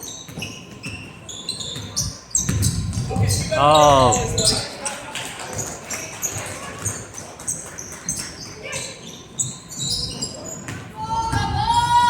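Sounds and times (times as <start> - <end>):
shoes squeaking on gym floor: 0.0 - 2.8, 7.8 - 10.9.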